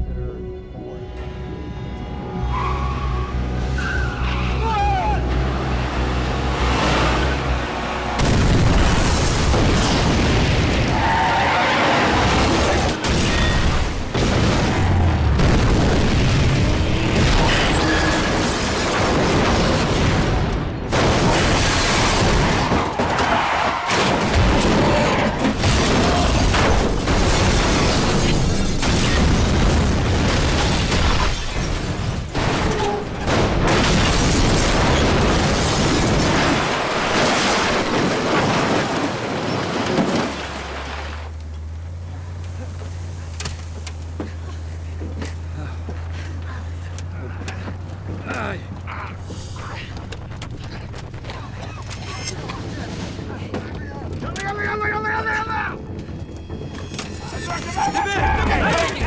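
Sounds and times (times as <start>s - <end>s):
explosions and impacts: 8.1s - 41.2s.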